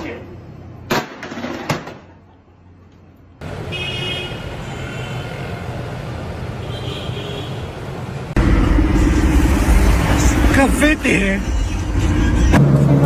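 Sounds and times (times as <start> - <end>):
car road noise: 7.7 - 13.0.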